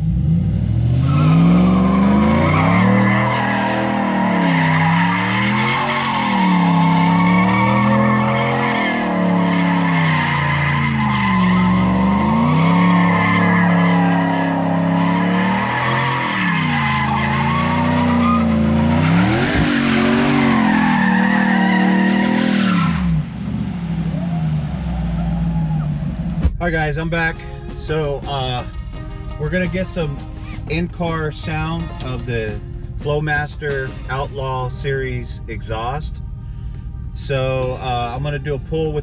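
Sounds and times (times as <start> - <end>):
truck engine revving: 0.0 - 38.5
tyres squealing: 1.1 - 23.0.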